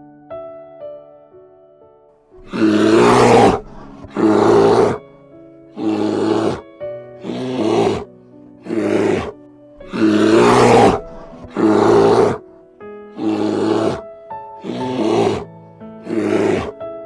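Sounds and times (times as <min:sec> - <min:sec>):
soft piano music: 0:00.0 - 0:02.4, 0:05.0 - 0:10.2, 0:12.4 - 0:16.1, 0:16.7 - 0:17.0
lion roaring: 0:02.4 - 0:05.0, 0:05.8 - 0:06.6, 0:07.2 - 0:08.1, 0:08.7 - 0:12.4, 0:13.2 - 0:14.0, 0:14.6 - 0:16.8.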